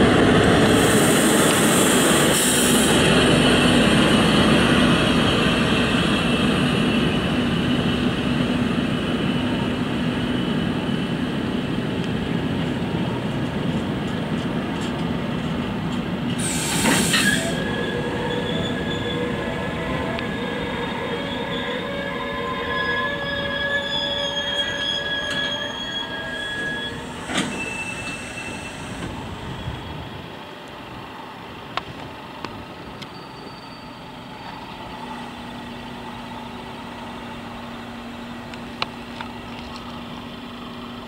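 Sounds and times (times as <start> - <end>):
locomotive engine hum: 0.0 - 41.0
short hiss: 16.4 - 17.4
wheels squealing: 16.5 - 30.2, 32.9 - 34.8.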